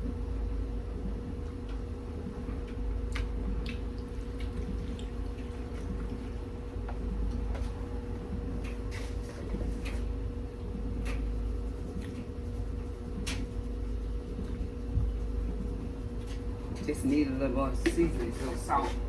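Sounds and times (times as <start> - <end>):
steady low hum: 0.0 - 19.0
wet clicks and squishes from tasting: 2.6 - 6.2.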